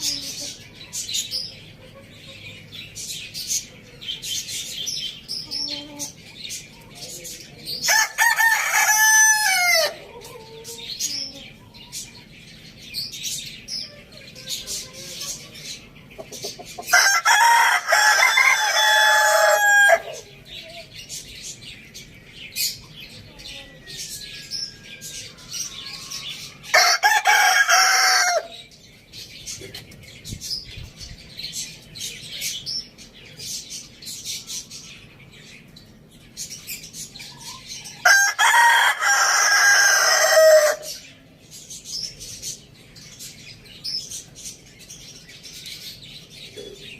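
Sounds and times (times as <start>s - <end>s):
small birds chirping: 0.0s - 46.9s
rooster crowing: 7.9s - 10.1s, 16.9s - 20.3s, 23.9s - 28.6s, 38.0s - 41.0s.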